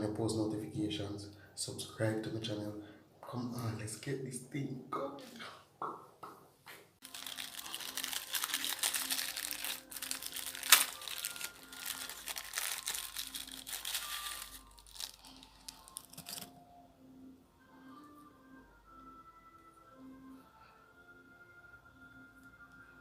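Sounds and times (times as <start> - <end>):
quiet background music: 0.0 - 23.0
dense crinkling and crackling: 7.0 - 16.5.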